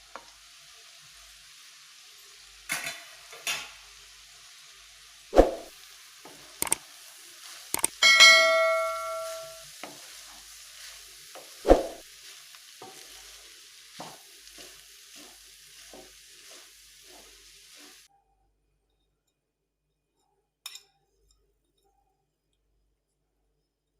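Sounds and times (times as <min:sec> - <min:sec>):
food sizzling in a pan: 0:00.0 - 0:18.1
utensil stirring food: 0:00.0 - 0:18.1
sharp metallic clang: 0:07.8 - 0:09.6.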